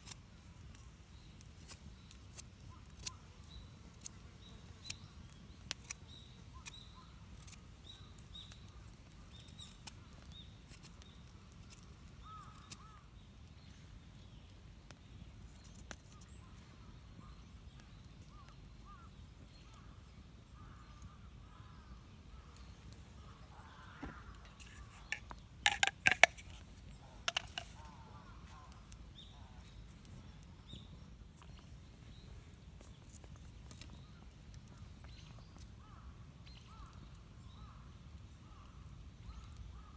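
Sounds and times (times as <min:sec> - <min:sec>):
wild birds chirping faintly: 0:00.3 - 0:39.9
sharp clicks: 0:24.3 - 0:26.6, 0:27.3 - 0:27.8.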